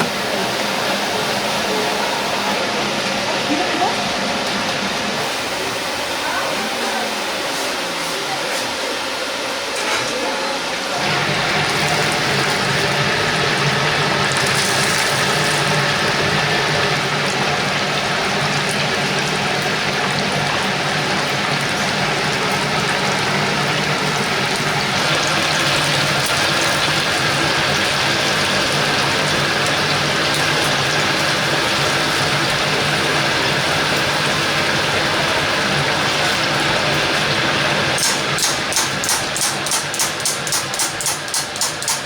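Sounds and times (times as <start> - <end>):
chicken sizzling in hot oil: 11.0 - 42.0.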